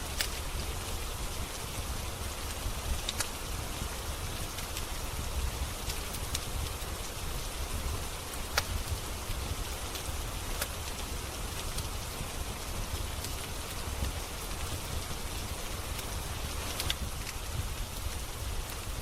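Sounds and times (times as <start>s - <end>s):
steady rain: 0.0s - 19.0s
wood fire crackles: 0.0s - 19.0s.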